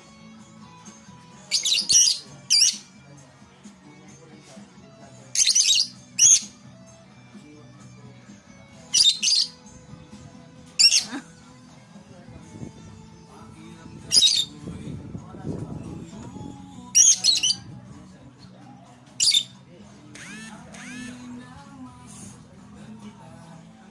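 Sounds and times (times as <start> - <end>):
quiet background music: 0.0 - 23.9
lovebirds squawking: 1.5 - 2.9, 5.4 - 6.6, 8.8 - 9.6, 10.8 - 11.2, 14.0 - 14.6, 16.9 - 17.7, 19.2 - 19.6.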